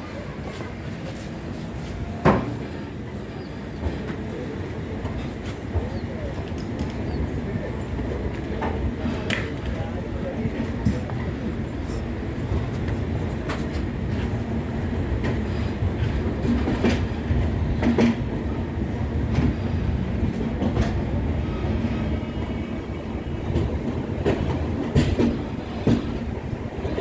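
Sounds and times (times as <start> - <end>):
train rumbling on track: 0.0 - 27.0
wheels clacking over rail joints: 21.8 - 27.0.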